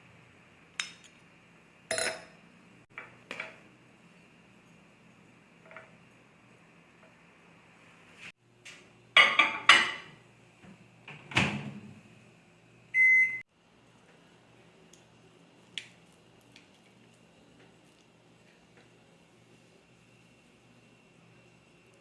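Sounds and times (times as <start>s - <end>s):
long beep: 13.0s - 13.4s.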